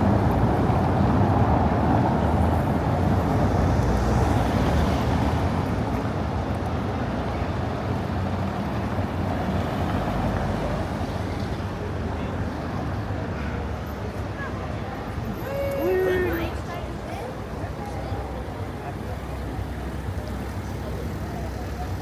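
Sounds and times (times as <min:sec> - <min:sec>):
traffic rumble: 0:00.0 - 0:22.0
crowd noise: 0:07.0 - 0:22.0.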